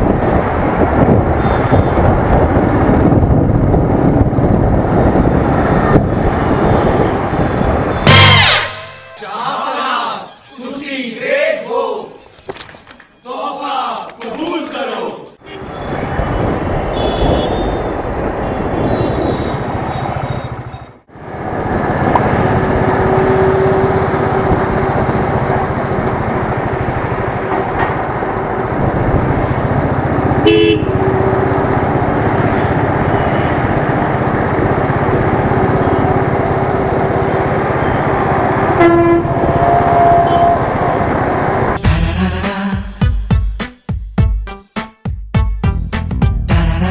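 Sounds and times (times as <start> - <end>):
wind and road noise: 0.0 - 9.2, 14.0 - 41.8
vehicle horns honking: 1.4 - 2.1, 6.6 - 10.8, 15.4 - 21.0, 30.4 - 31.6, 38.8 - 40.8, 46.5 - 46.9.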